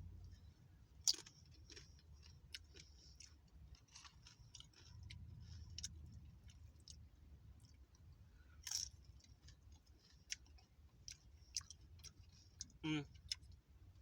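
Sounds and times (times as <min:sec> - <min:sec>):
chewing crunchy food: 0:00.2 - 0:14.0.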